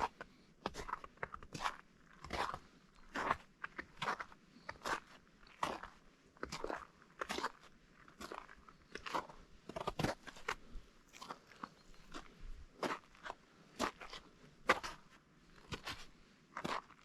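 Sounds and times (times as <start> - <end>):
footsteps crunching on snow: 9.0 - 16.9.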